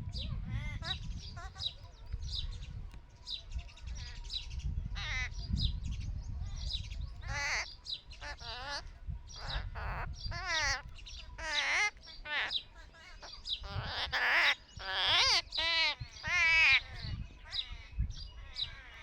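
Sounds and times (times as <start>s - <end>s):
birds chirping: 0.1s - 19.0s
wavering bird calls: 7.2s - 19.0s.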